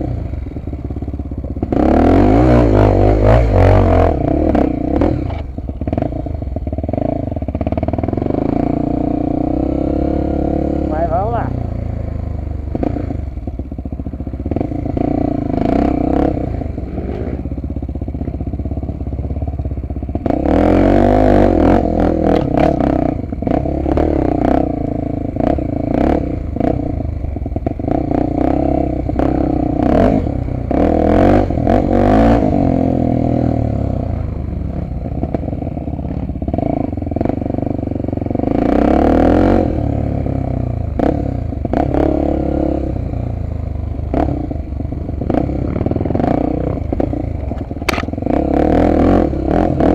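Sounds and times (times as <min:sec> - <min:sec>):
motorcycle engine revving: 0:00.0 - 0:49.9
motorcycle clattering over rough ground: 0:47.0 - 0:48.3.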